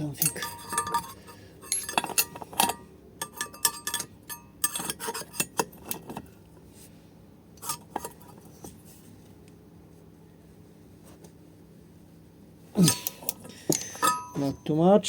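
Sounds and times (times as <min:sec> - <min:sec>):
metal tools clinking: 0:00.0 - 0:06.3, 0:12.8 - 0:14.8.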